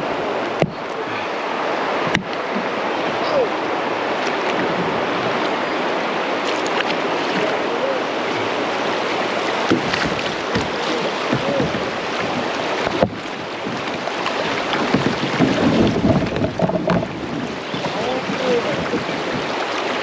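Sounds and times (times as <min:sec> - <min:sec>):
whitewater rushing: 0:00.0 - 0:20.0
sharp knocks: 0:02.1 - 0:02.3, 0:09.7 - 0:13.8
wind on microphone: 0:08.3 - 0:20.0.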